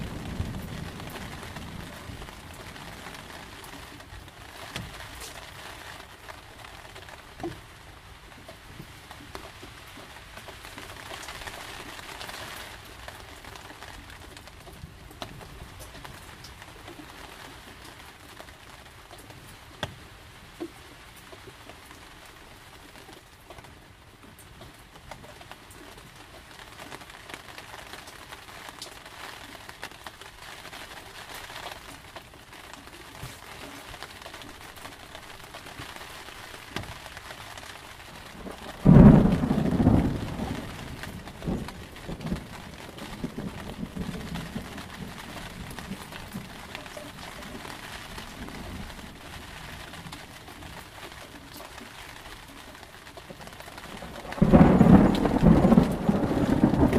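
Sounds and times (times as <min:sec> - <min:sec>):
thunder rumbling: 0:00.0 - 0:04.3, 0:38.2 - 0:50.2, 0:53.6 - 0:56.9
steady rain: 0:00.0 - 0:56.9.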